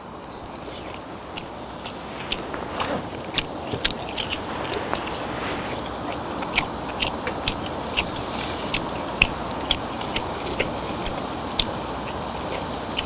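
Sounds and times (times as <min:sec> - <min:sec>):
steady low hiss: 0:00.0 - 0:13.0
chewing with wet mouth clicks: 0:00.2 - 0:13.0.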